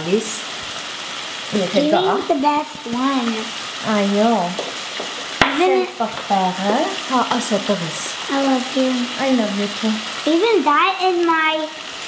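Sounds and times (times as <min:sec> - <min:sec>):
people talking: 0:00.0 - 0:00.4, 0:01.5 - 0:04.6, 0:05.4 - 0:11.8
vegetables sizzling in a pan: 0:00.0 - 0:12.0
wooden spoon stirring: 0:04.5 - 0:07.6.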